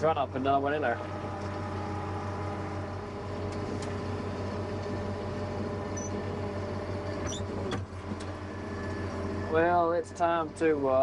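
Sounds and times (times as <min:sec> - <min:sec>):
tractor engine running under load: 0:00.0 - 0:11.0
brief high squeaks: 0:05.9 - 0:06.2, 0:07.2 - 0:07.8.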